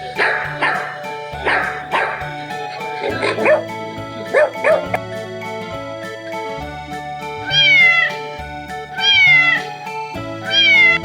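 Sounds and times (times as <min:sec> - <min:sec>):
background music: 0:00.0 - 0:11.0
dog bark: 0:00.1 - 0:05.0
cat meowing: 0:04.3 - 0:05.0, 0:07.4 - 0:08.2, 0:09.0 - 0:09.6, 0:10.4 - 0:11.0.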